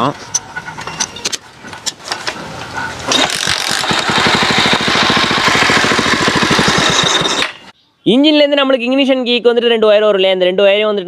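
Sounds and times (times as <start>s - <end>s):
small motorcycle engine running: 0.0s - 7.7s.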